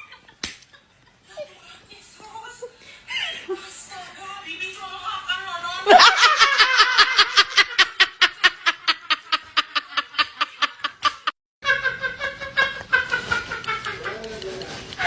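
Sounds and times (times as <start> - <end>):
rapid rhythmic laughter: 5.8 - 15.0.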